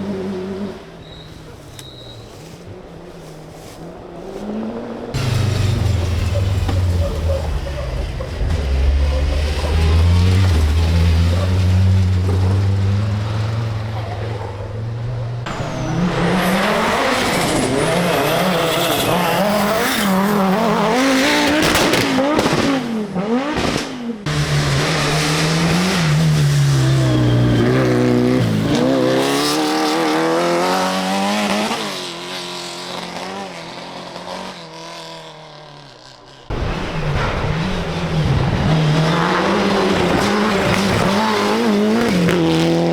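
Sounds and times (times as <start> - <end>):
rally car engines revving: 0.0 - 42.9
tyre squeal: 1.0 - 2.6, 15.5 - 20.7.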